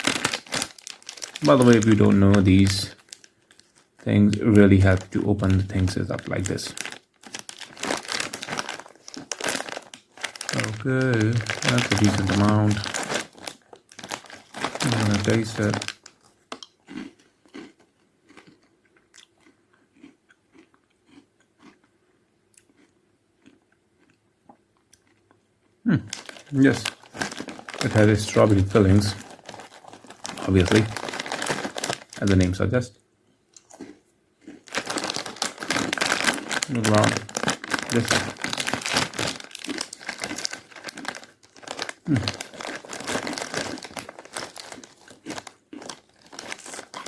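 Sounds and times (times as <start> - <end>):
plastic wrapper crinkling: 0.0 - 16.7, 26.0 - 32.9, 34.6 - 47.0
faint chewing of crunchy snack: 0.0 - 47.0.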